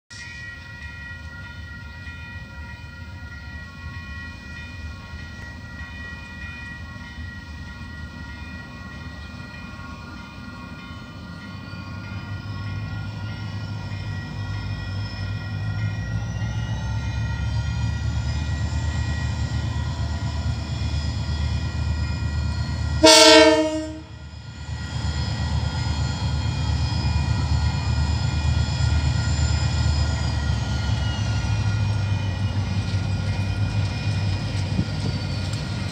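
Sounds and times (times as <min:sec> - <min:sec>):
diesel locomotive rumbling: 0:00.4 - 0:35.9
train horn blast: 0:23.0 - 0:24.2.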